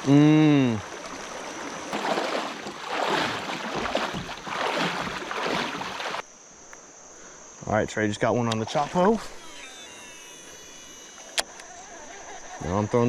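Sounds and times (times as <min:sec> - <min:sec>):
water swishing and splashing: 0:00.0 - 0:06.3
high insect buzz: 0:00.0 - 0:13.0.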